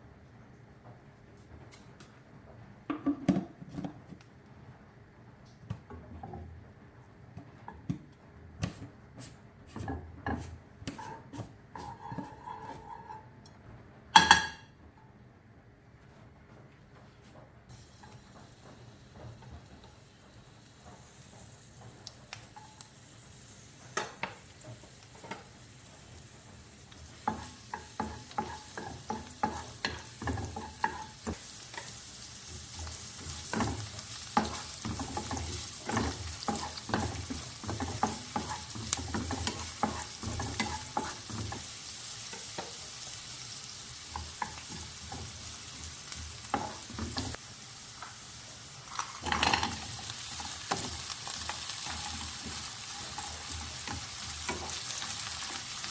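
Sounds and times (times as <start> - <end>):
utensil scraping against pan: 8.6 - 13.4, 27.0 - 47.4
food sizzling in a pan: 17.7 - 55.9.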